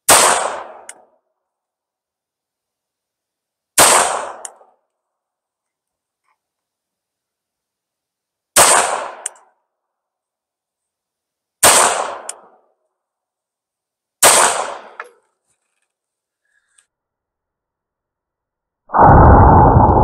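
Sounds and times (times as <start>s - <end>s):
pistol shots: 0.1s - 0.9s, 3.8s - 4.5s, 8.6s - 9.3s, 11.6s - 12.5s, 14.2s - 15.0s.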